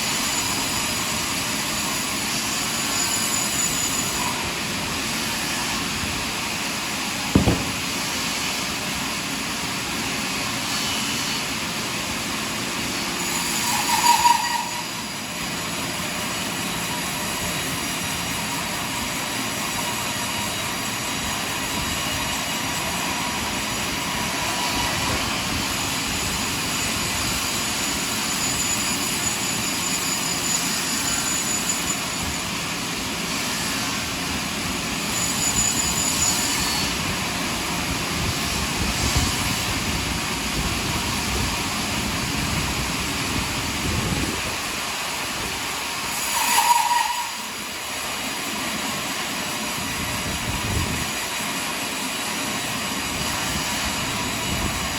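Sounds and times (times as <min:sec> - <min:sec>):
sawmill machinery sawing log: 0:00.0 - 0:54.9
sharp knock: 0:07.4 - 0:08.1.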